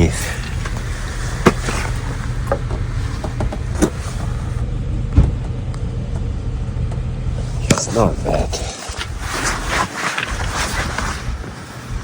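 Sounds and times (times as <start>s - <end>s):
wind buffeting microphone: 7.3s - 12.0s.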